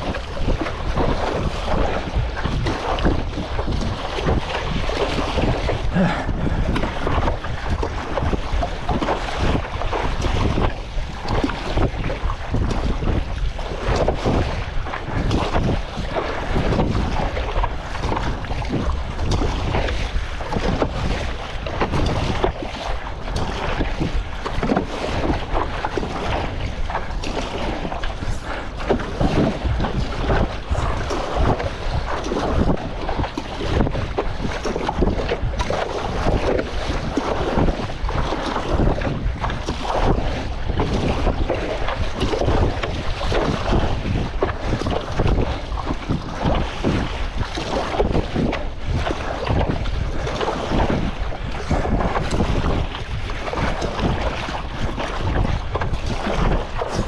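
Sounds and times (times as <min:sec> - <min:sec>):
choppy seawater splashing: 0:00.0 - 0:57.0
wind buffeting microphone: 0:00.0 - 0:57.0.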